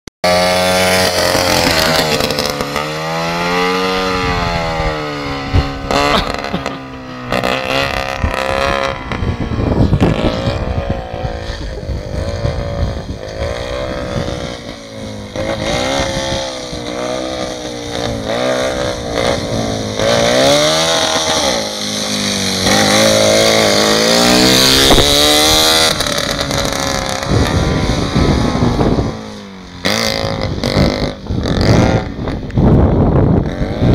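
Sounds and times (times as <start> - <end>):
two-stroke engine revving: 0.2 - 33.9.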